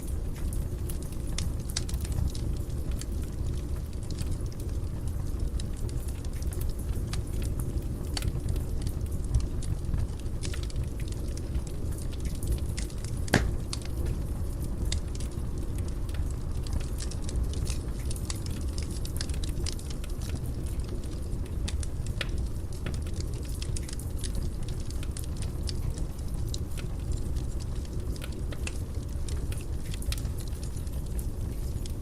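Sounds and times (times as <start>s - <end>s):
fire crackling and popping: 0.0s - 32.0s.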